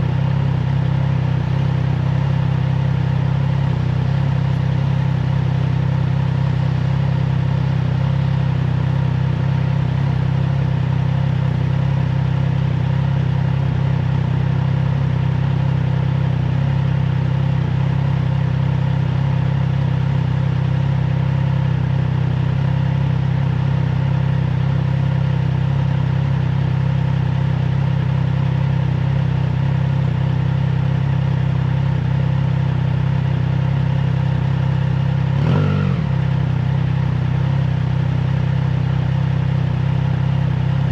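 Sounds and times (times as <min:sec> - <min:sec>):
motorcycle engine cruising: 0:25.6 - 0:40.9.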